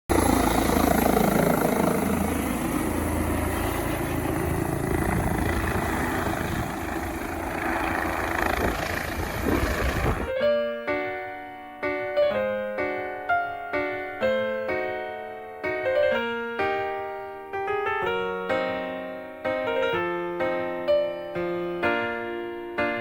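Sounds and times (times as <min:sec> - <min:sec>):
helicopter rotor and engine: 0:00.1 - 0:10.3
piano music: 0:00.2 - 0:23.0.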